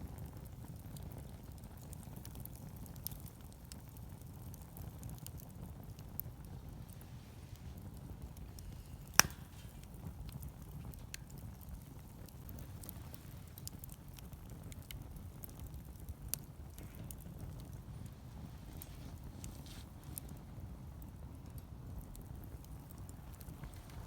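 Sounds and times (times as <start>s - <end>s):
wood fire crackling: 0.0s - 24.0s
sharp loud pop: 9.1s - 9.8s.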